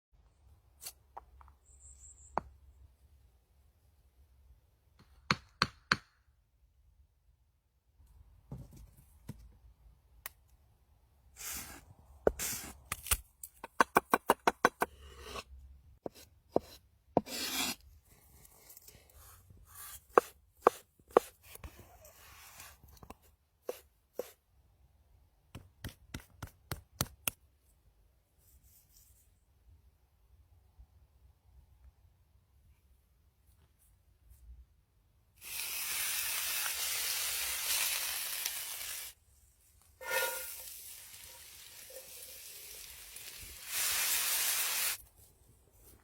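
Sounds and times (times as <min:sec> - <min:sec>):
knife scraping board: 0:11.4 - 0:12.8, 0:14.9 - 0:15.5, 0:16.1 - 0:17.8, 0:40.0 - 0:40.6
knife chopping on cutting board: 0:20.1 - 0:21.3.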